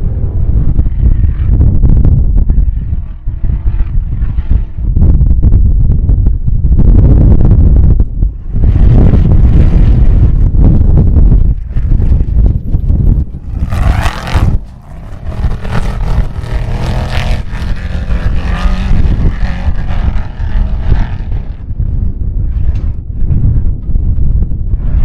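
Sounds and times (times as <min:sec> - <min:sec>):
wind buffeting microphone: 0:00.0 - 0:25.0
race vehicle engine passing: 0:11.7 - 0:21.7.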